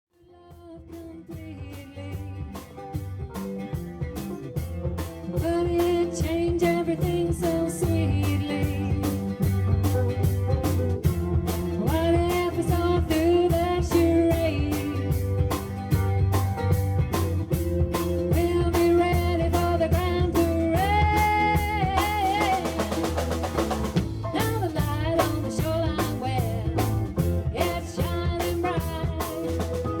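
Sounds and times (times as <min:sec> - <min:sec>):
bass guitar: 0:00.1 - 0:30.0
electric guitar: 0:00.3 - 0:30.0
steady drum beat: 0:00.8 - 0:30.0.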